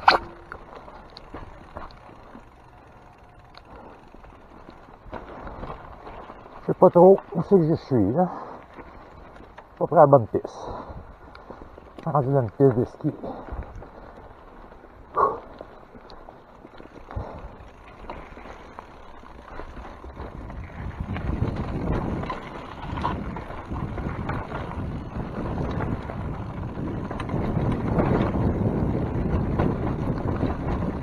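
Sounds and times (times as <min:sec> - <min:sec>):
bike tyres rumbling and rattling: 0:00.0 - 0:31.0
wind buffeting microphone: 0:17.0 - 0:31.0.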